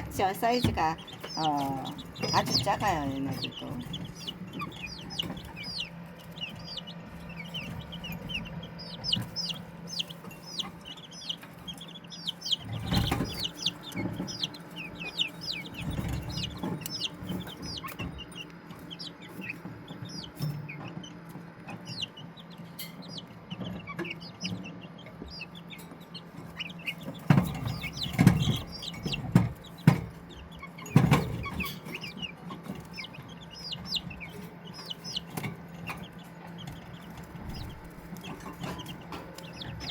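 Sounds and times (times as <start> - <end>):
knocks and bumps: 0.0 - 18.3, 27.0 - 33.1
low hum: 0.0 - 30.4
chicks peeping: 0.0 - 39.9.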